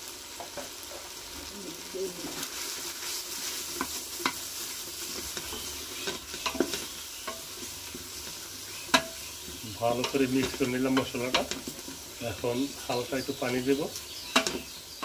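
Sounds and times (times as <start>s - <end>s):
food sizzling in oil: 0.0s - 15.0s
spatula scraping and knocking pot: 3.7s - 12.1s, 14.3s - 14.8s.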